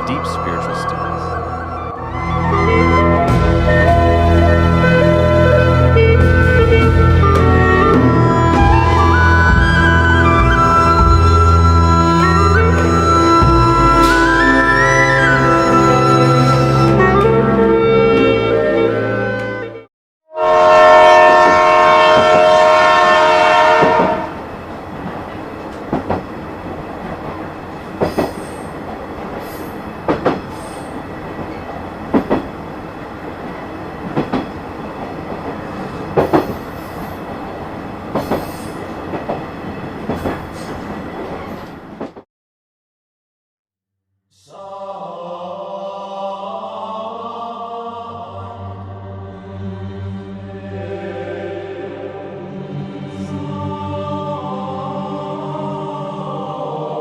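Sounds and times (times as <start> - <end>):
train rumbling: 0.0 - 19.6, 20.6 - 42.2
background music: 0.0 - 24.3, 45.3 - 57.0
train horn: 0.2 - 9.2, 20.3 - 24.5
wheels clacking over rail joints: 24.9 - 32.7, 33.4 - 42.2.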